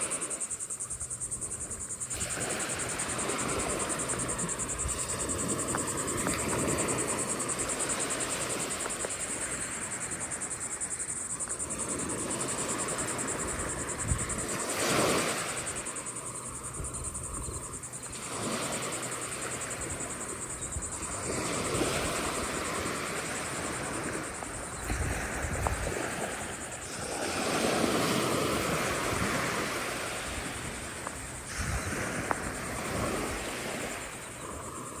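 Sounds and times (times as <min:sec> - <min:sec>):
steady high hiss: 0:00.0 - 0:35.0
ocean surf breaking: 0:18.1 - 0:35.0.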